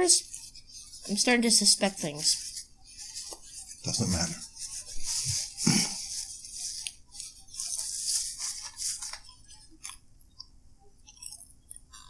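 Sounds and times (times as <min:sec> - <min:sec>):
paper food wrapping crinkling: 0:02.1 - 0:10.0.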